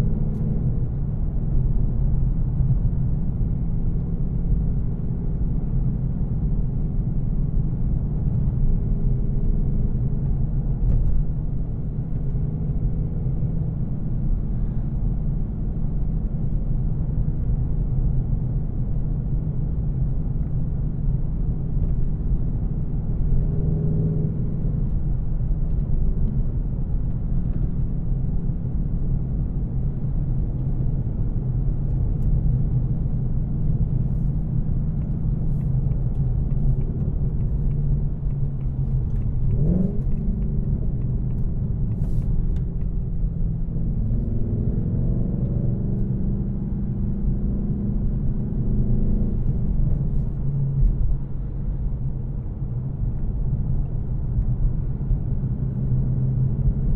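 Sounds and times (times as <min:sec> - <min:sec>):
car engine running: 0:00.0 - 0:56.9
engine revving: 0:39.4 - 0:40.9.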